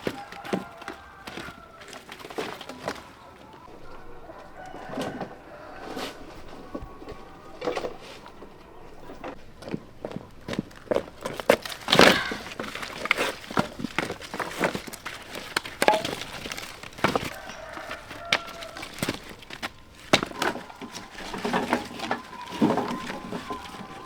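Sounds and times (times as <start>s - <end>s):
rustling: 0.0s - 24.0s
snaps and cracks: 10.6s - 24.0s.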